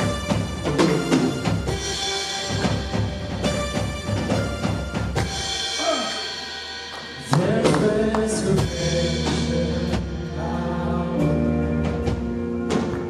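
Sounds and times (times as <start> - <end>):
drum hits: 0.0 - 10.4
people singing: 7.0 - 12.5.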